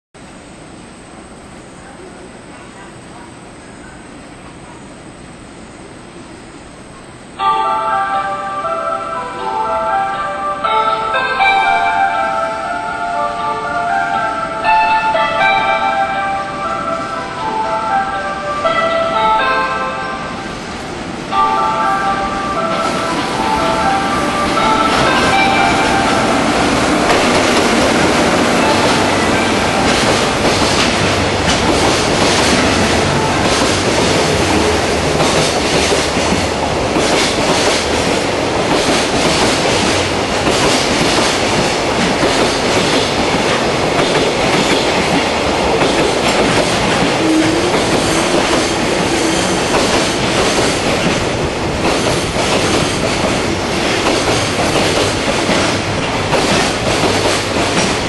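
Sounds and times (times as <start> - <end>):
train wheels clattering over joints: 26.8 - 58.0.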